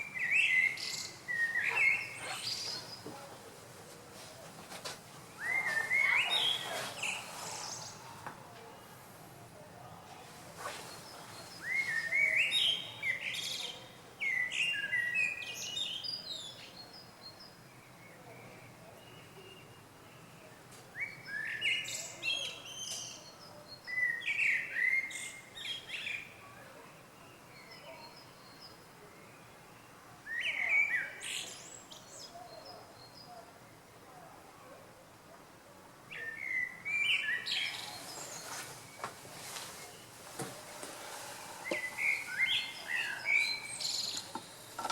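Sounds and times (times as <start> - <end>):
songbird singing sweeping notes: 0.0 - 3.0, 5.3 - 8.1, 10.6 - 13.6, 36.1 - 44.8
songbird singing: 0.0 - 3.5, 5.2 - 34.4, 36.1 - 44.9
faint bird chirps: 5.4 - 9.0, 36.1 - 44.8.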